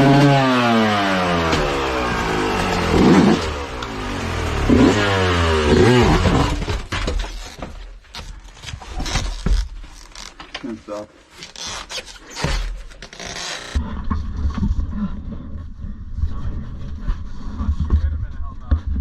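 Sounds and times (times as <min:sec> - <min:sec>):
dirt bike engine revving: 0:00.0 - 0:06.9.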